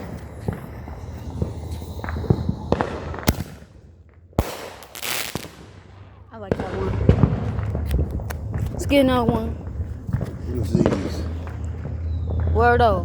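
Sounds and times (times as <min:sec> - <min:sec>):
firework hiss: 0:00.0 - 0:03.8, 0:04.4 - 0:06.0
fireworks sharp bangs: 0:00.0 - 0:12.9
fireworks popping: 0:00.0 - 0:13.0.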